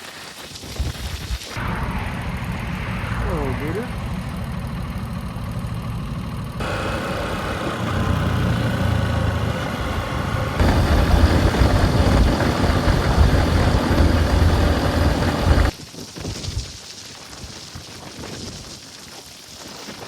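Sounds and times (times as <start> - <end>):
motorcycle engine running: 3.3 - 15.8.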